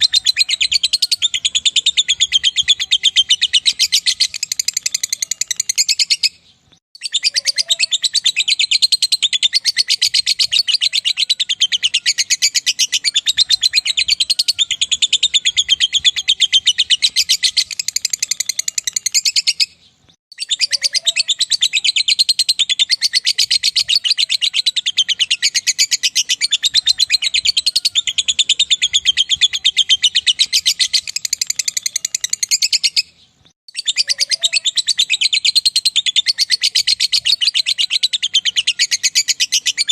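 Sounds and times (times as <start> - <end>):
lovebird rapid high chatter: 0.0 - 6.4, 7.0 - 19.7, 20.3 - 33.0.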